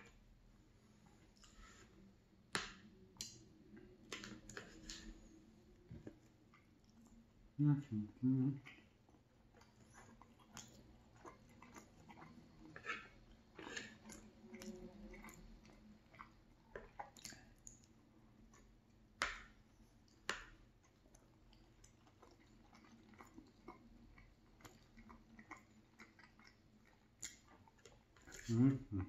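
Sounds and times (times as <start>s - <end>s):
close chewing: 8.6s - 18.7s, 20.8s - 28.7s.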